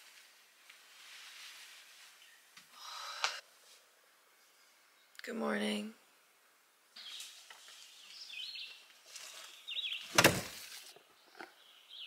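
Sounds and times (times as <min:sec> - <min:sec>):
birds chirping and singing: 0:07.0 - 0:10.5, 0:11.1 - 0:12.0.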